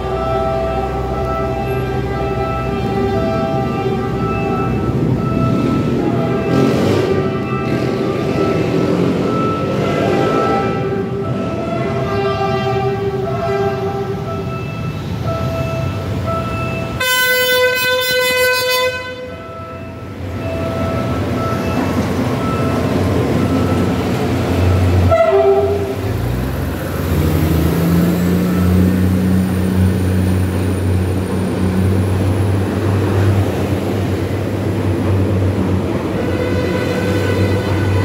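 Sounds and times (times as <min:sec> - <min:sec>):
train horn: 0:00.0 - 0:04.6, 0:09.7 - 0:14.3, 0:17.0 - 0:19.4, 0:25.0 - 0:26.0, 0:36.1 - 0:38.0
diesel engine drone: 0:00.0 - 0:38.0
wheel and rail noise: 0:00.0 - 0:38.0.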